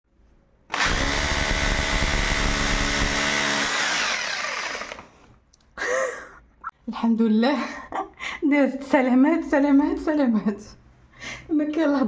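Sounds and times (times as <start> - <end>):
power tool motor spinning down: 0.7 - 5.2.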